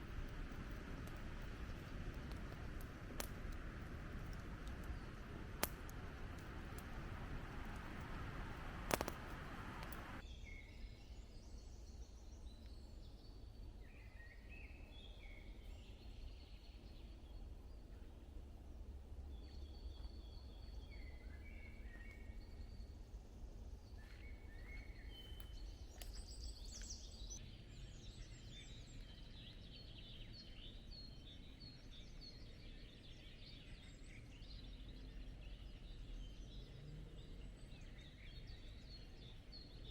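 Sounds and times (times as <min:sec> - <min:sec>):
low steady rumble: 0:00.0 - 0:10.2.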